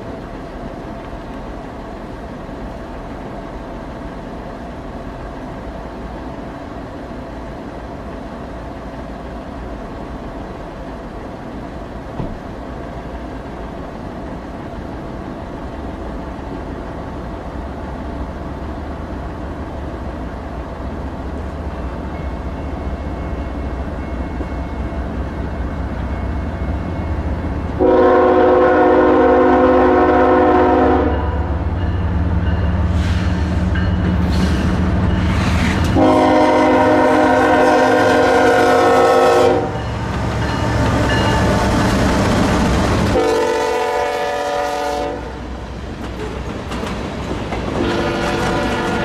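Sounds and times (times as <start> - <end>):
diesel locomotives rumbling: 0.0 - 49.0
train horn chord: 27.8 - 31.5, 36.0 - 41.8, 43.1 - 45.5, 47.8 - 49.0.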